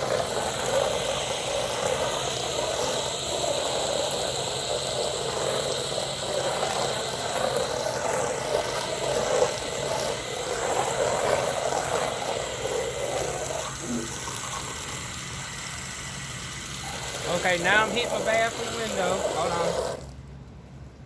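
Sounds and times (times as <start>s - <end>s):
pressure washer spray hissing: 0.0s - 20.2s
machine humming: 0.0s - 20.5s.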